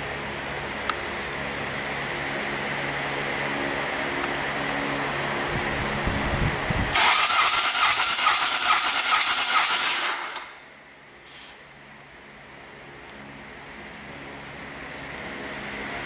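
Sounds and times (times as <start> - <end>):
pressurised air hissing: 11.3 - 11.7.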